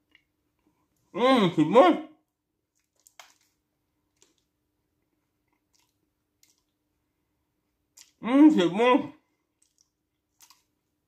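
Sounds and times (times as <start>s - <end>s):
mouth chewing chocolate bar: 2.7s - 6.8s, 7.9s - 8.2s, 9.4s - 10.8s.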